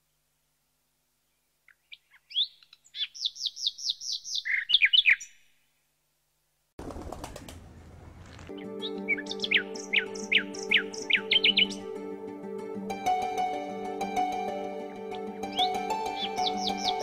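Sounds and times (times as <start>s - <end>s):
songbird singing: 1.2s - 5.7s, 6.8s - 12.0s, 15.4s - 17.0s
rustling noise: 6.8s - 8.5s.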